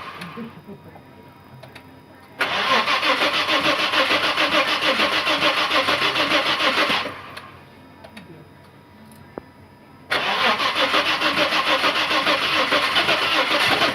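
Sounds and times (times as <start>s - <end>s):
car starter motor cranking: 0.0s - 0.5s, 2.4s - 7.5s, 10.1s - 13.9s.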